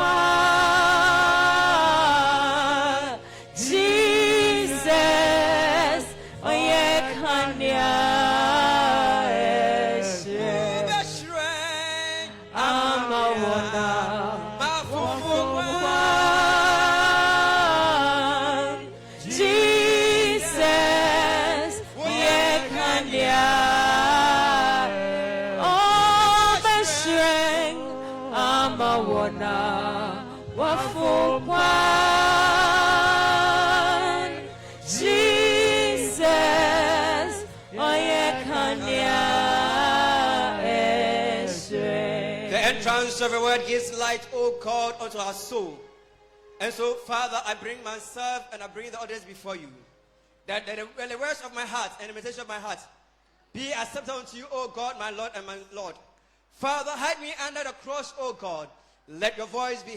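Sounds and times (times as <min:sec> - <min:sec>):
person singing with vibrato: 0:00.0 - 0:43.6
instrumental accompaniment: 0:00.0 - 0:47.1.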